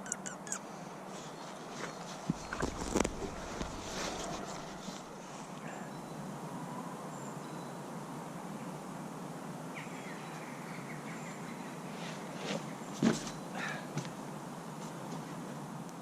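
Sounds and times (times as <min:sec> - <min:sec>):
bird chirps: 0:00.0 - 0:00.6
woodland ambient noise: 0:00.0 - 0:16.0.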